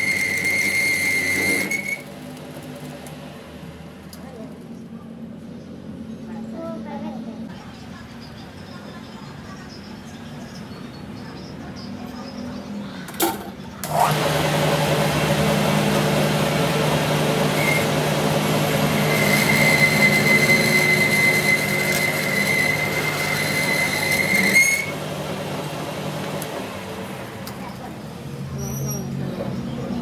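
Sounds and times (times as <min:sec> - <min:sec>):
high cutting squeal: 0:00.0 - 0:02.1, 0:17.4 - 0:25.0, 0:28.5 - 0:29.2
machine tool cutting steel: 0:00.0 - 0:02.4, 0:15.2 - 0:25.0.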